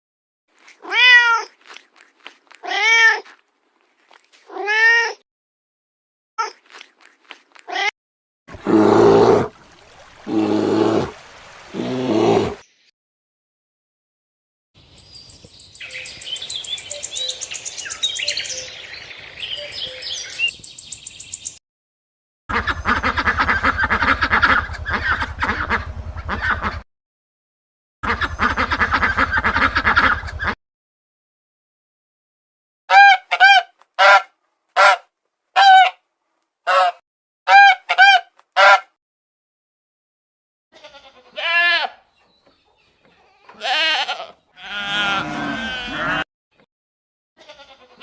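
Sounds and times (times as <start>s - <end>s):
birds chirping: 14.8s - 21.6s
waterfowl calling: 22.5s - 26.8s, 28.0s - 30.6s.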